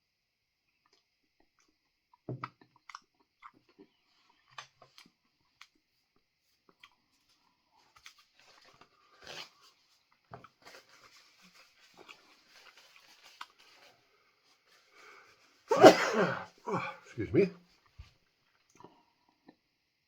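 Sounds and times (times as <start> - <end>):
person chewing crispy food: 0.8 - 14.0.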